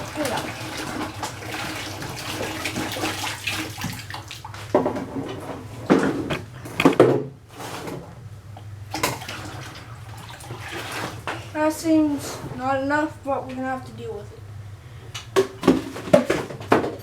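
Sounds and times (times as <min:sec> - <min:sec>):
water pouring into a bucket: 0:00.0 - 0:04.9, 0:08.9 - 0:11.5.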